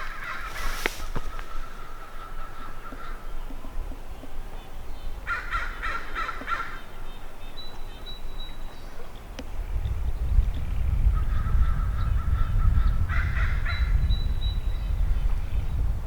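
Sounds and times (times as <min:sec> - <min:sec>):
bird calling: 0:00.0 - 0:03.7.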